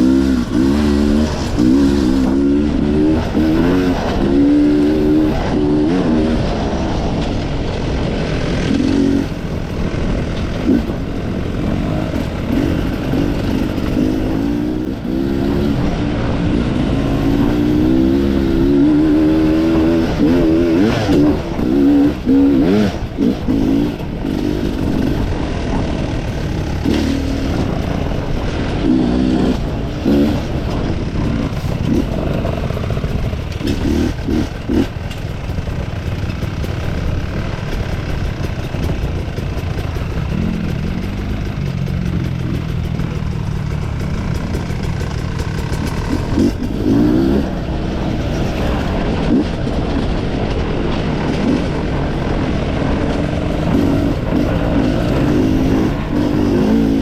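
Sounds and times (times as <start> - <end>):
motorcycle engine revving: 0.0 - 57.0
sharp knocks and clatter: 22.6 - 47.4.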